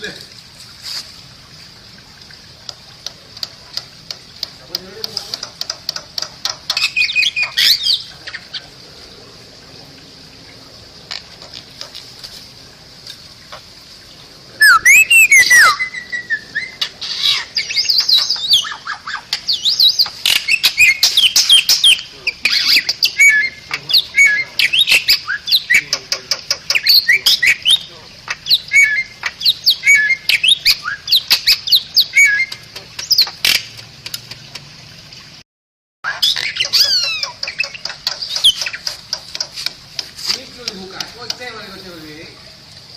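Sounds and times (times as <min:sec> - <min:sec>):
steady high hiss: 0:00.0 - 0:33.2, 0:36.6 - 0:42.9
bird singing whistles and chirps: 0:14.6 - 0:18.8, 0:19.5 - 0:25.8, 0:28.5 - 0:33.3.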